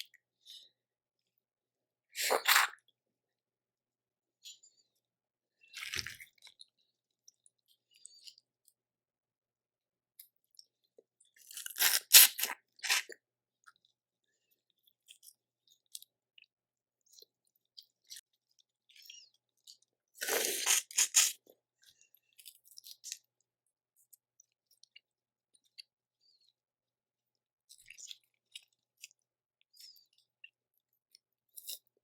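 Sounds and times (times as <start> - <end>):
shell crunching: 20.2 - 21.4
wet mouth smacks: 20.2 - 21.4.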